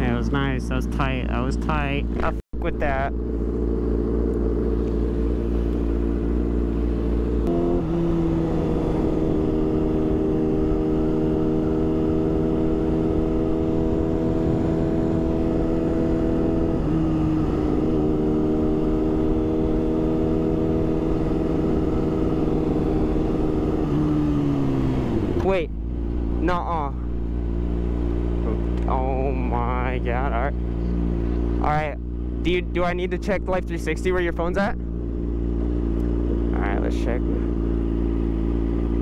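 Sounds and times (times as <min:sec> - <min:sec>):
motorcycle engine at speed: 0:00.0 - 0:39.0.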